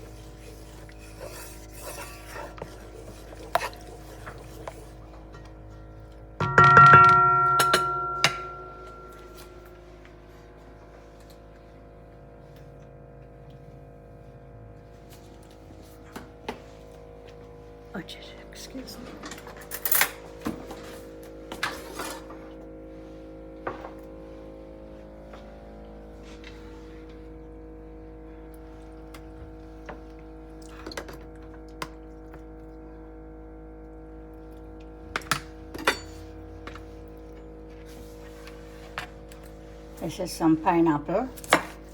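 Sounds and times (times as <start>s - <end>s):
hum of held tones: 2.6s - 14.9s
utensils and containers knocking: 6.4s - 9.7s.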